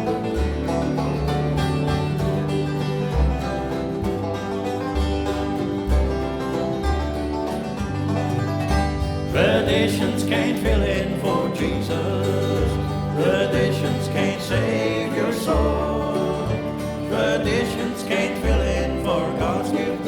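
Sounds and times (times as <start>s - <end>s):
bluegrass band playing: 0.0s - 20.0s
people singing: 9.3s - 20.0s.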